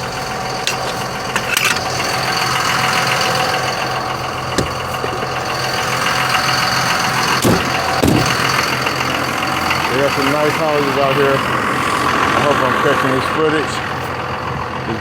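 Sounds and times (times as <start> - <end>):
truck engine running: 0.0 - 15.0
short knocks: 4.5 - 5.3, 7.4 - 8.4.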